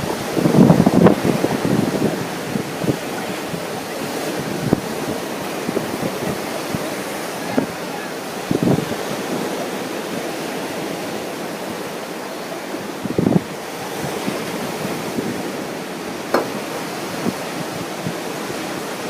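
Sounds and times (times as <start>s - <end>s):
ocean surf washing onto beach: 0.0s - 19.0s
wind buffeting microphone: 0.0s - 19.0s.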